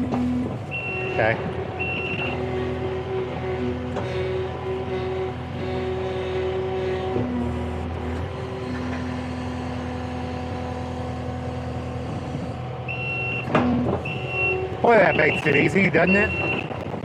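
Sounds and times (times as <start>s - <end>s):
diesel engine running under load: 0.0s - 17.0s
high warning beep: 0.7s - 2.4s, 12.9s - 16.8s.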